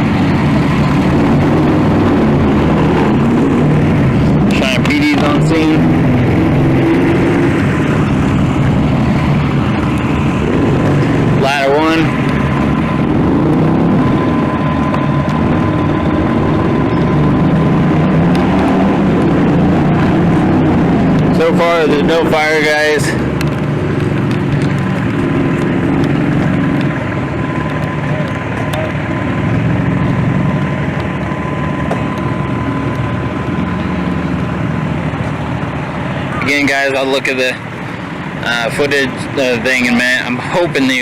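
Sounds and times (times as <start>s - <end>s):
faint steady whine: 0.0s - 41.0s
vehicle engine idling: 0.0s - 41.0s.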